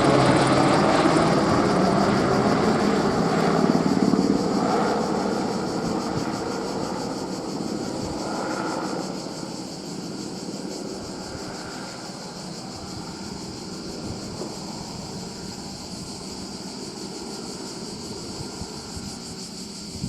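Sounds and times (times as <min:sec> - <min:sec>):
helicopter rotor and turbine: 0:00.0 - 0:20.0.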